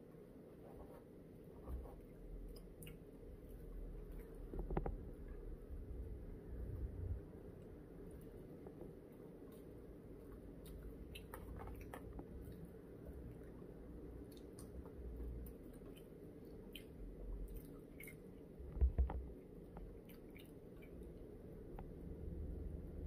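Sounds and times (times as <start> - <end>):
person chewing food: 1.9 - 5.4, 7.7 - 22.0
wet mouth clicks: 14.3 - 18.4.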